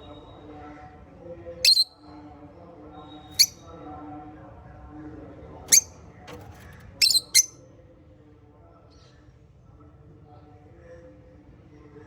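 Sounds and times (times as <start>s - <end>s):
parrot chatter: 7.0s - 7.5s
parrots squawking: 7.0s - 7.5s.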